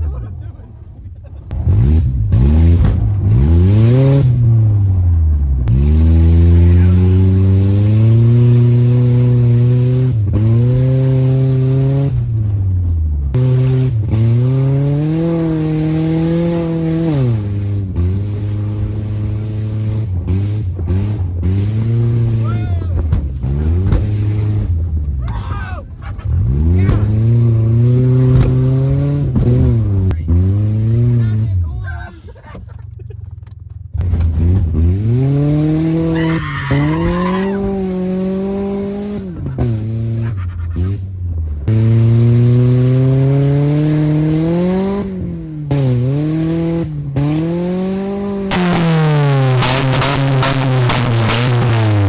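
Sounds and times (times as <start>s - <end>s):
car engine revving: 0.0s - 31.9s, 32.5s - 52.0s
tires squealing: 35.6s - 41.0s.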